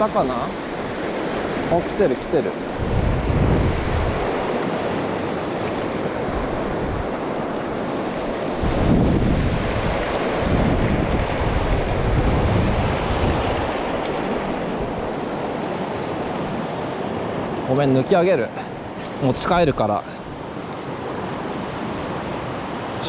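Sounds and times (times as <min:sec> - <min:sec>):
wind buffeting microphone: 0:00.0 - 0:17.7
stream rushing: 0:00.0 - 0:23.0.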